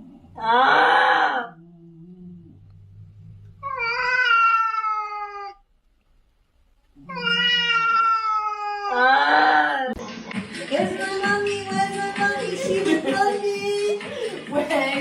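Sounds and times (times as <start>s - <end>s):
cat meowing: 3.6s - 5.6s, 7.0s - 10.0s.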